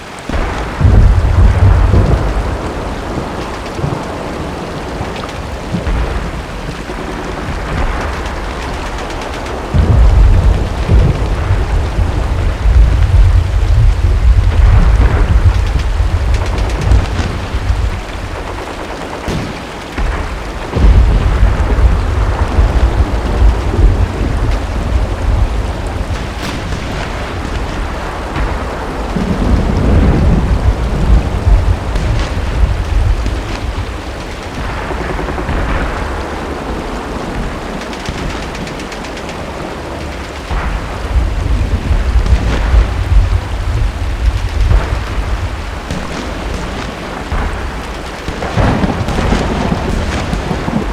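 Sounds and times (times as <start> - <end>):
distant artillery: 0.0 - 50.9
heavy rain: 0.0 - 50.9
thunder rumbling: 0.0 - 50.9
machine-gun fire: 16.2 - 22.8, 45.9 - 50.9
gunshots: 16.3 - 21.8, 26.2 - 28.6, 45.8 - 50.9.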